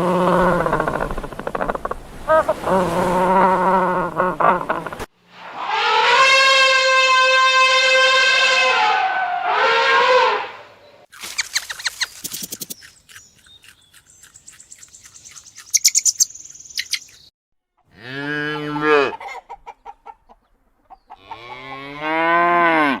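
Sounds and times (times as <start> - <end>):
birds chirping and trilling: 10.8 - 17.3
drawn-out farm animal calls: 17.8 - 23.0.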